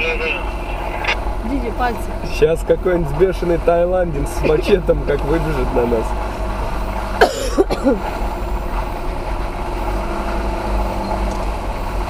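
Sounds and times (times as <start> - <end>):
car engine running: 0.0 - 12.0
tyre and road noise: 0.0 - 12.0
person coughing: 7.2 - 8.0.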